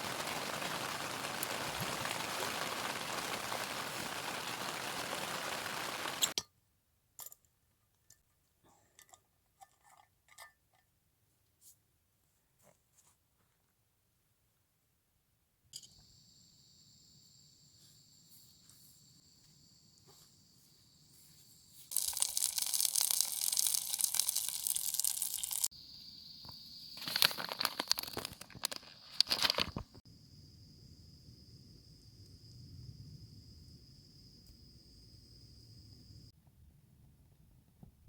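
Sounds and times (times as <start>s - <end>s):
insects trilling: 0.0s - 6.3s, 15.9s - 36.3s
loud rushing hiss: 0.0s - 6.4s
crunching and rustling: 27.0s - 30.0s.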